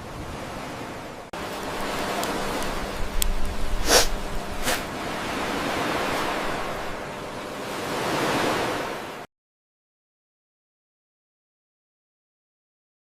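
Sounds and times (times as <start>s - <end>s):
rushing ambient noise: 1.1s - 9.3s.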